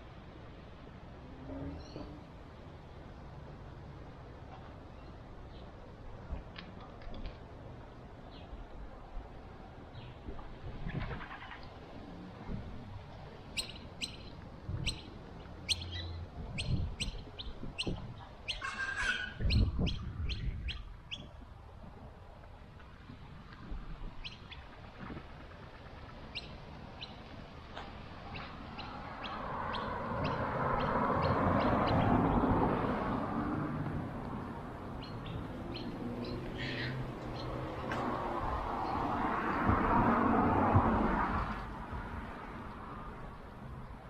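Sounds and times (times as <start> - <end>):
small bird chirping: 13.6 - 15.1, 15.7 - 18.7.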